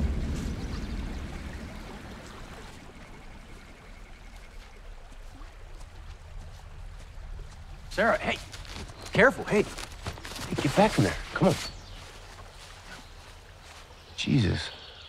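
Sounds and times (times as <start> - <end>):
deep low rumble: 0.0 - 4.3
river water flowing: 0.0 - 15.0.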